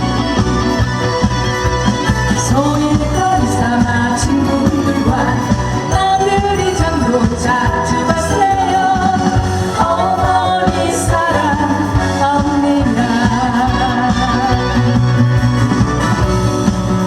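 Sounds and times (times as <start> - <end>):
backing track with steady beat: 0.0 - 17.0
person singing: 2.4 - 15.1.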